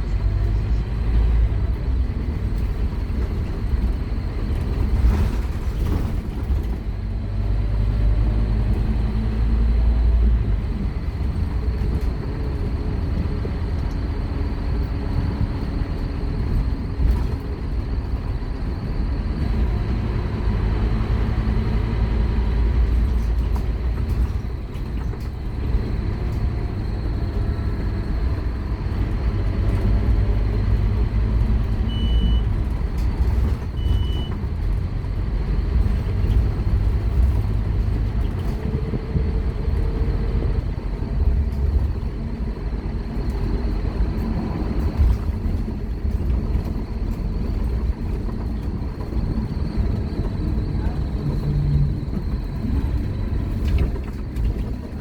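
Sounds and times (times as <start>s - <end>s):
bus diesel engine rumbling: 0.0s - 55.0s
short high beeps: 31.9s - 32.4s.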